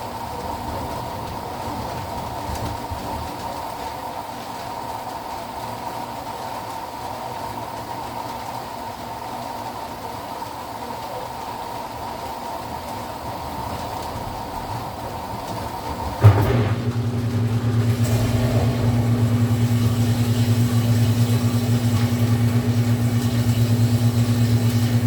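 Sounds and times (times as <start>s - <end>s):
washing machine humming and whining: 0.0s - 25.0s
low motor hum: 15.6s - 25.0s
sudden knock: 16.2s - 20.2s.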